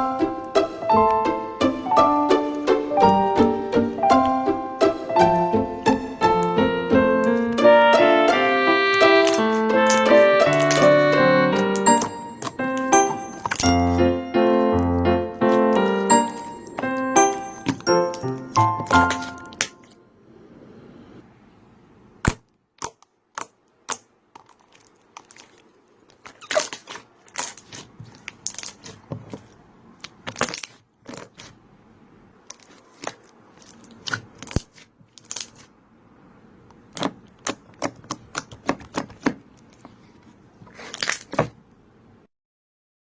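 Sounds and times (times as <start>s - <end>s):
slime squeezed by hand: 24.7s - 29.0s.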